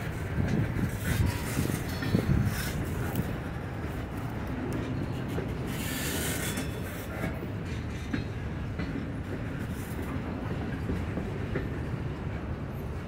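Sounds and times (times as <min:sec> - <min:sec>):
train wheel clicks: 0:00.0 - 0:12.2
steel wheels rumbling on rail: 0:00.0 - 0:13.0.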